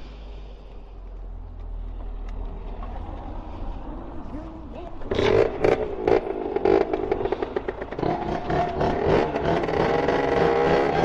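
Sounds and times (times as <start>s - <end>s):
two-stroke dirt bike revving: 5.1s - 11.0s.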